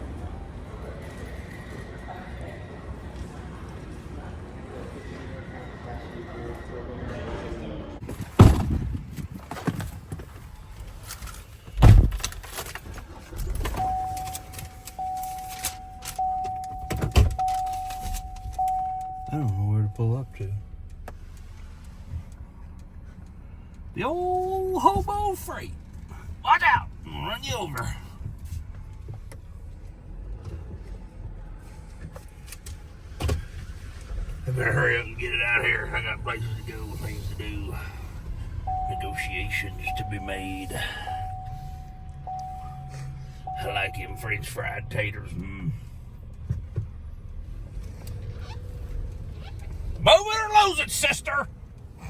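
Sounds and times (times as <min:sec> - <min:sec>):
truck driving rumble: 0:00.0 - 0:52.0
vehicle warning chime: 0:13.6 - 0:20.9, 0:34.5 - 0:46.0.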